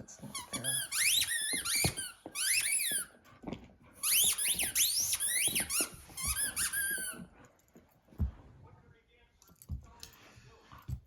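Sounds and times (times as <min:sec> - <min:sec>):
dog toy squeaking: 0:00.2 - 0:03.2, 0:04.0 - 0:07.3.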